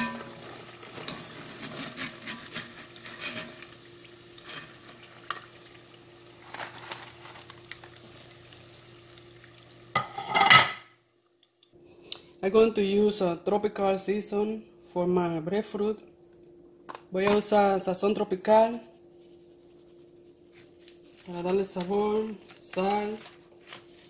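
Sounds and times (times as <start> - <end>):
wire skimmer scraping a pot: 0.0 - 3.8, 4.4 - 5.0, 6.4 - 8.4
slices sizzling in hot oil: 0.0 - 10.4.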